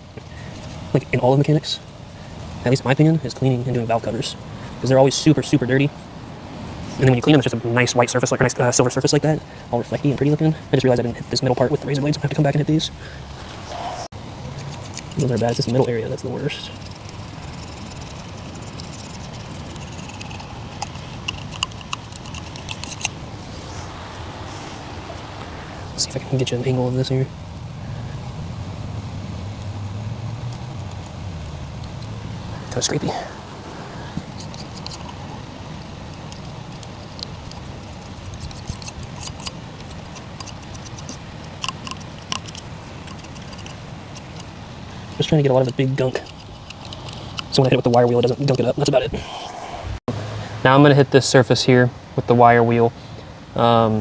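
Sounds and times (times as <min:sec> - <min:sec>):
razor blade scraping gasket: 0:13.6 - 0:23.8, 0:34.1 - 0:49.0
sharp clicks: 0:16.7 - 0:23.2, 0:34.2 - 0:48.9.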